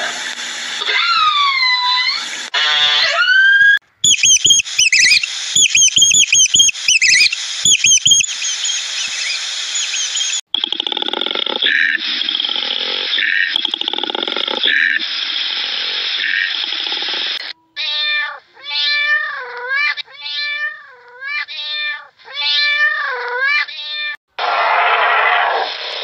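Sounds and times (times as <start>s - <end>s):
steady noise: 4.1s - 10.4s
animal meow-like calls: 24.4s - 25.8s.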